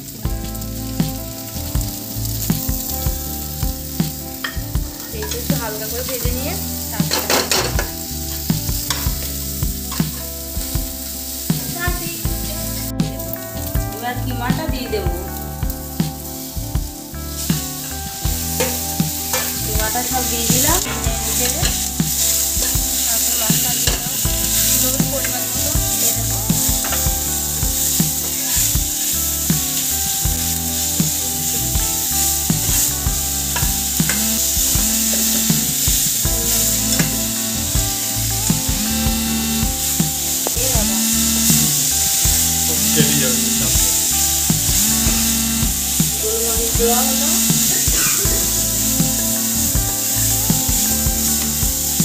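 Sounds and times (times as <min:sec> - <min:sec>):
chicken sizzling in hot oil: 0:00.0 - 0:52.0
metal spatula scraping a pan: 0:18.6 - 0:25.6.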